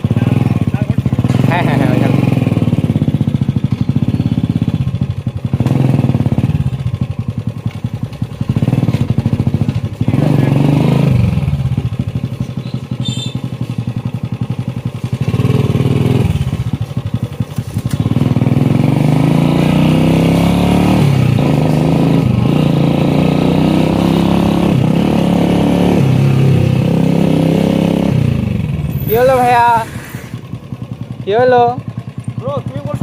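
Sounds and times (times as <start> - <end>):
motorcycle engine chugging and accelerating: 0.0 - 33.0.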